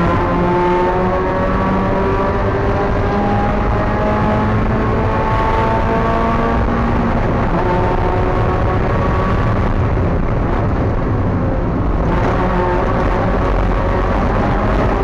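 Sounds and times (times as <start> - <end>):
race car engine running hard: 0.0 - 15.0.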